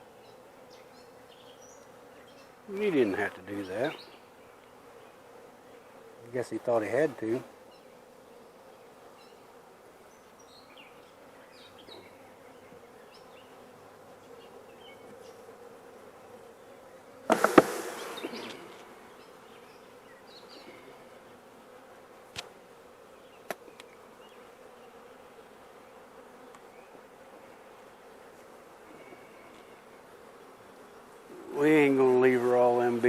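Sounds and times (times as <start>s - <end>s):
bees buzzing: 0.0s - 33.0s
cluster of knocks: 17.3s - 17.8s.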